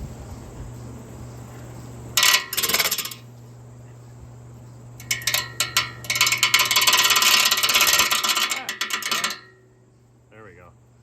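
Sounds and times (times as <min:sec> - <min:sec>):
metal rattling: 0:02.2 - 0:03.3, 0:05.0 - 0:09.6.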